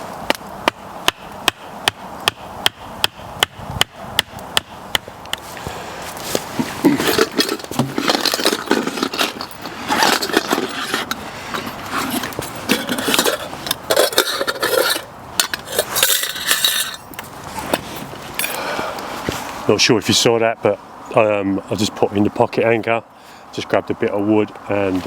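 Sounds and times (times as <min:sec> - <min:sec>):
metal clinking and clattering: 0:06.8 - 0:18.6.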